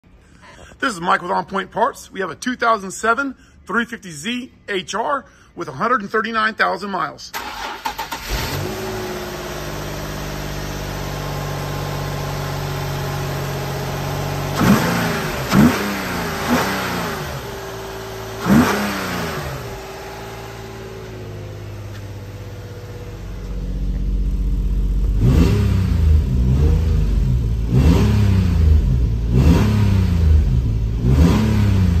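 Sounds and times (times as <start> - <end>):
car engine idling and revving: 7.4 - 32.0.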